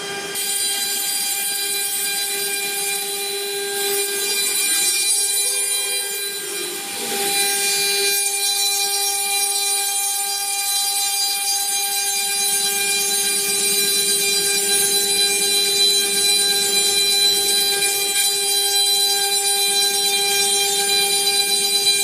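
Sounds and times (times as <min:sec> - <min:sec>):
machine spindle high whine: 0:00.0 - 0:22.0.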